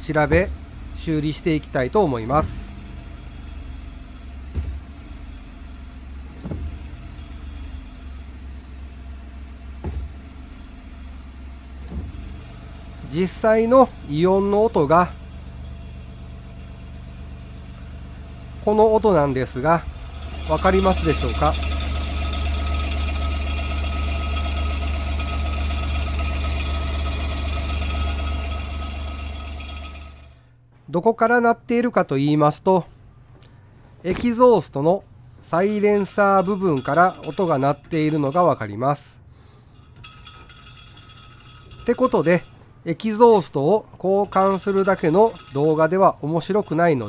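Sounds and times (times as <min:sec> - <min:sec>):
car engine idling: 0:00.0 - 0:30.5, 0:35.2 - 0:38.6, 0:43.9 - 0:47.0
exhaust rattle: 0:00.0 - 0:30.5, 0:33.6 - 0:47.0
sharp knocks: 0:04.4 - 0:05.4, 0:06.3 - 0:07.5, 0:09.8 - 0:10.5, 0:11.8 - 0:14.6, 0:34.1 - 0:34.4, 0:35.6 - 0:38.6.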